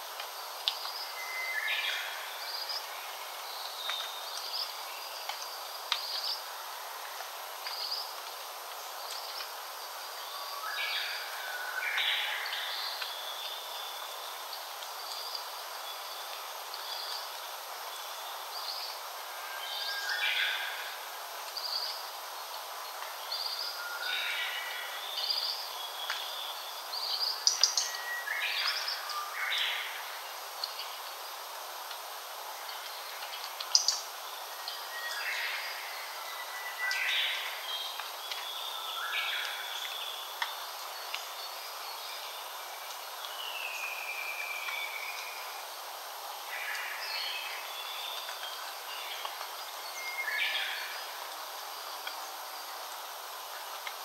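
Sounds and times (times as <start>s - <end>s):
steady background hiss: 0.0s - 54.0s
wild birds singing: 32.2s - 53.5s.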